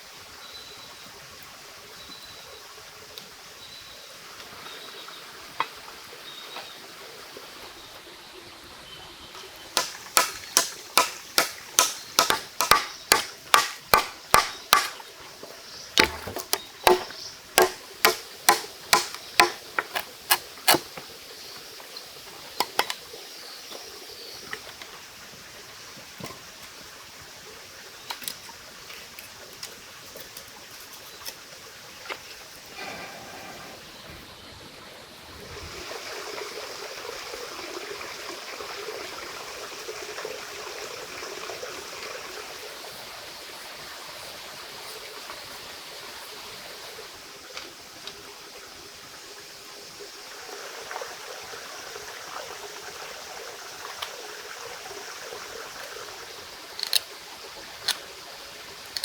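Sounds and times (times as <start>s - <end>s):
running stream: 0.0s - 59.0s
quick chopping strikes: 9.8s - 15.0s, 16.0s - 20.1s.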